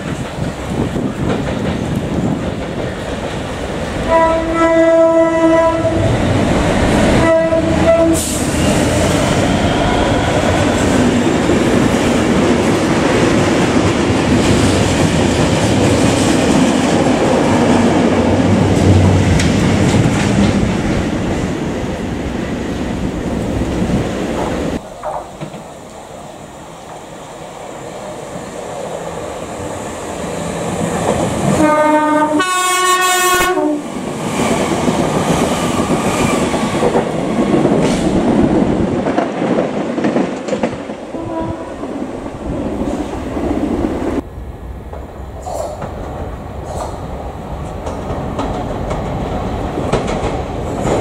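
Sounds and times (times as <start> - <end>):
train rumble: 0.0 - 51.0
locomotive horn blasts: 4.1 - 6.1, 7.2 - 8.5, 31.6 - 33.8, 41.2 - 41.8.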